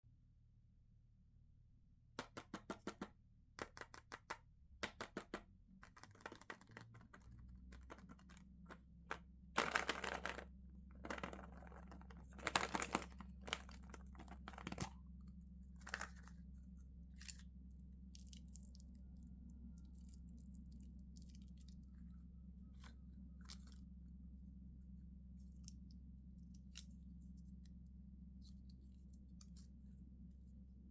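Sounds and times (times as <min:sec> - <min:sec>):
plastic wrapper crinkling and tearing: 0:11.2 - 0:14.9.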